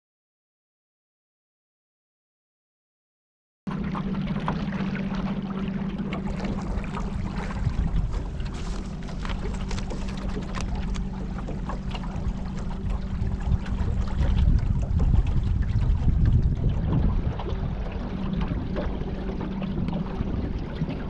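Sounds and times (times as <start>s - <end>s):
boat motor running: 3.7s - 21.0s
water splashing against hull: 3.7s - 21.0s
wind on microphone: 6.2s - 21.0s.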